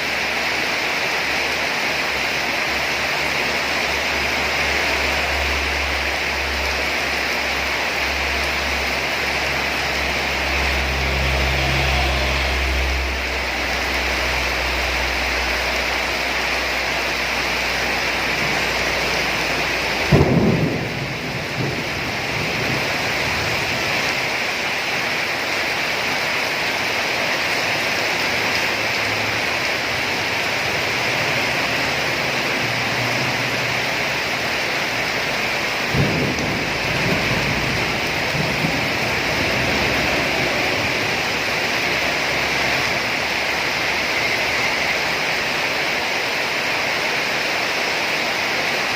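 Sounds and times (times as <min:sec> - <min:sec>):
steady rain: 0:00.0 - 0:48.9
thunderclaps: 0:18.2 - 0:24.7, 0:35.2 - 0:44.1.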